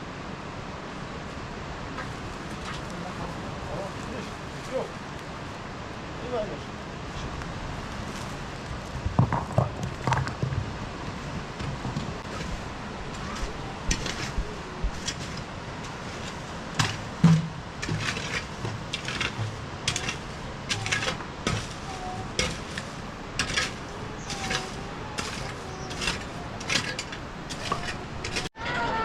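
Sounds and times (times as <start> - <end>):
hard objects knocking and clattering: 9.0 - 10.8, 16.2 - 28.5.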